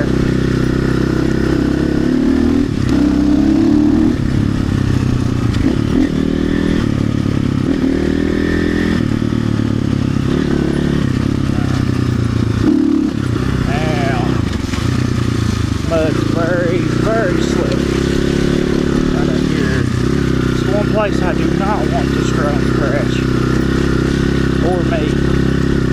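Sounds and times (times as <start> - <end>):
dirt bike engine revving: 0.0 - 25.9.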